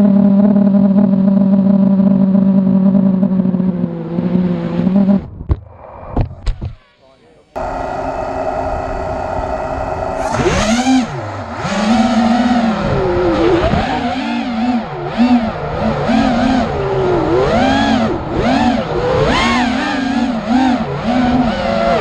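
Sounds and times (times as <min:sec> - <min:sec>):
drone motors whining: 0:04.7 - 0:22.0.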